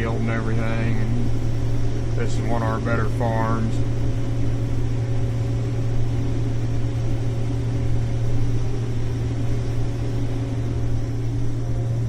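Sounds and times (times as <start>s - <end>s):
combine harvester drone: 0.0s - 12.0s.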